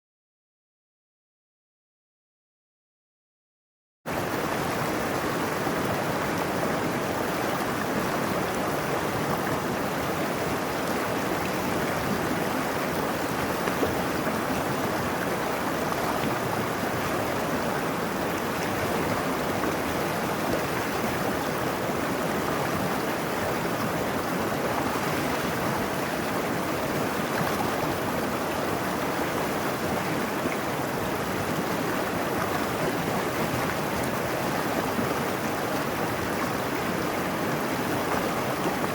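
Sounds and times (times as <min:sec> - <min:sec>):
stream rushing over rocks: 0:04.1 - 0:38.9.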